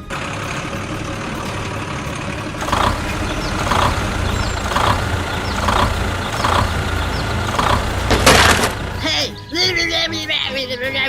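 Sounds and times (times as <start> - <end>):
cartoon vehicle engine effect: 0.0 - 9.2.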